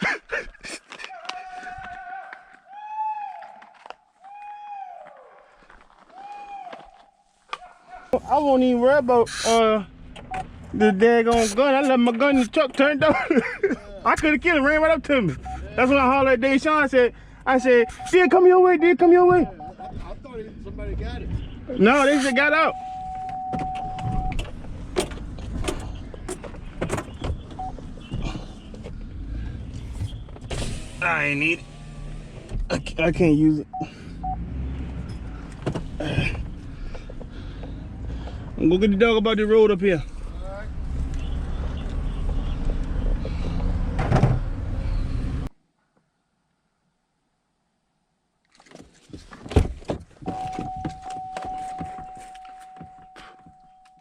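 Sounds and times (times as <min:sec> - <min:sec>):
vehicle engine rumbling: 0:08.2 - 0:45.5, 0:49.0 - 0:54.0
electronic warning chime: 0:22.2 - 0:24.4, 0:50.3 - 0:54.0
truck door knocks and clatter: 0:23.5 - 0:28.6, 0:49.4 - 0:52.1.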